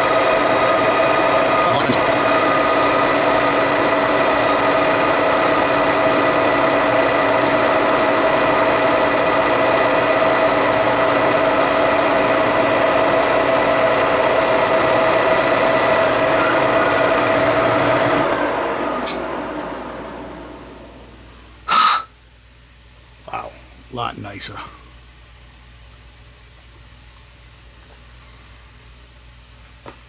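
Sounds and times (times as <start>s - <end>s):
metalworking machine whine: 0.0s - 21.6s.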